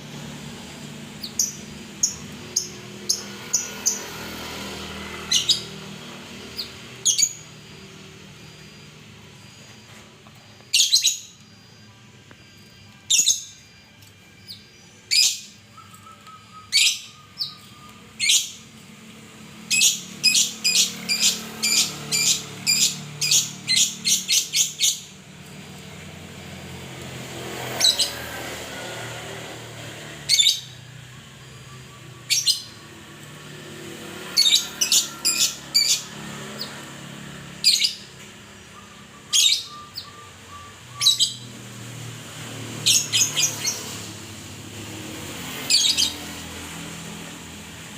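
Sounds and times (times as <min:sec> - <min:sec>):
songbird high chirps: 0:14.4 - 0:18.6, 0:37.7 - 0:41.6.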